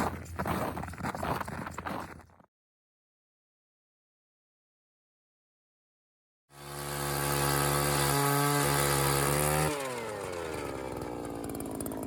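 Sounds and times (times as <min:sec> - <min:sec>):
small gas engine revving: 0:06.5 - 0:12.0.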